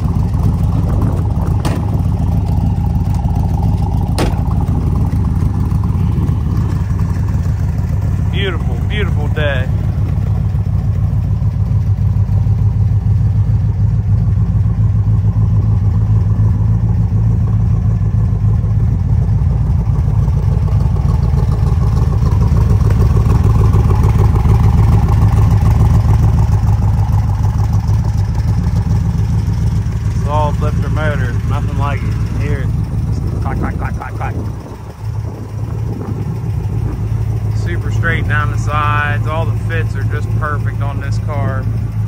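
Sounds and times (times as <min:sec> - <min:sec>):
car engine idling: 0:00.0 - 0:42.0.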